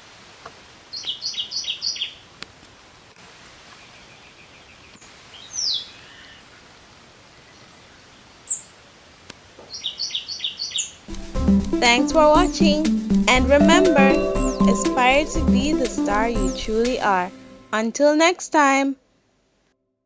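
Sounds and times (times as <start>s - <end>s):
outdoor hiss: 0.0s - 13.3s
songbirds calling: 0.7s - 2.8s, 3.7s - 11.2s
very high bird chirp: 0.9s - 2.2s, 5.4s - 6.4s, 8.5s - 8.7s, 9.7s - 11.0s, 13.8s - 15.4s.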